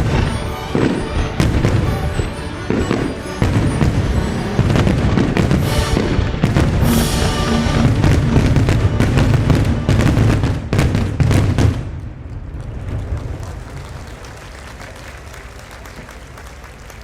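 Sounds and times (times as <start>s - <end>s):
show music: 0.0s - 11.4s
fireworks booming: 0.0s - 14.3s.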